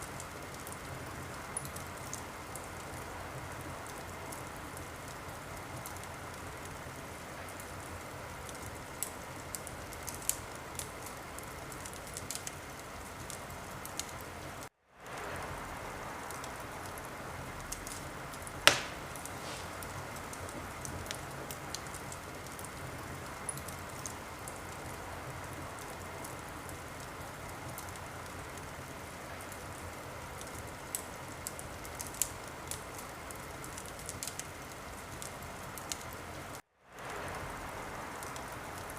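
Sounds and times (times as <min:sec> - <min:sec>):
wood fire crackling: 0:00.0 - 0:38.9
sharp pops of fire: 0:17.7 - 0:22.7.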